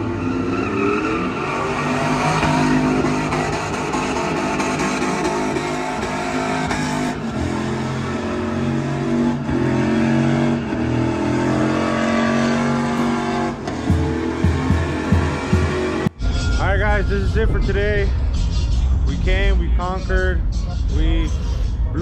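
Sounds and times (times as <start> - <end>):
vehicle engine at high revs: 0.0 - 16.1.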